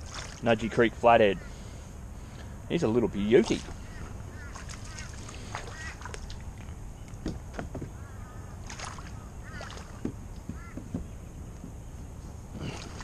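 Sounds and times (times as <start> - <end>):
water splashing: 0.0 - 1.0, 3.2 - 6.7, 8.6 - 10.7, 12.5 - 13.0
bird calling: 0.5 - 13.0.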